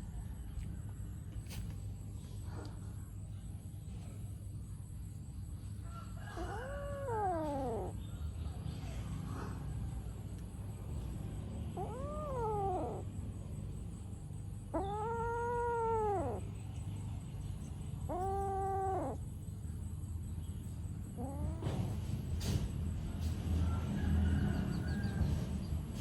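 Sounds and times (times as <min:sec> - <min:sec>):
steady low hum: 0:00.0 - 0:26.0
cat meowing: 0:06.4 - 0:08.0, 0:11.7 - 0:13.2, 0:14.7 - 0:16.6, 0:18.0 - 0:19.2, 0:21.1 - 0:22.0.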